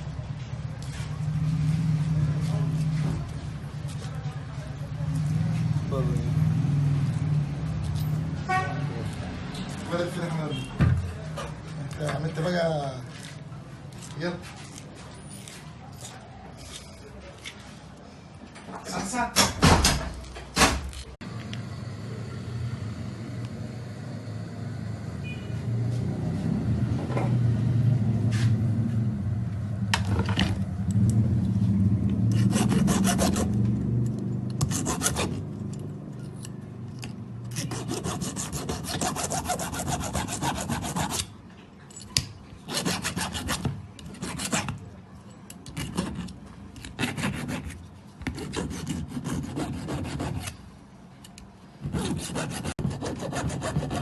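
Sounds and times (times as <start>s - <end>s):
hand tool rasping strokes: 32.3s - 33.6s, 34.6s - 36.4s, 37.5s - 41.3s, 42.7s - 44.7s, 45.6s - 50.6s, 52.0s - 54.0s.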